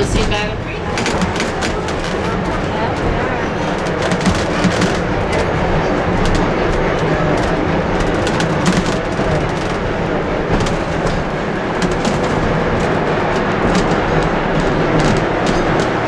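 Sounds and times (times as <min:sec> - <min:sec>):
sharp clicks of wheels: 0:00.0 - 0:16.0
train wheels rumbling on rail: 0:00.0 - 0:16.0.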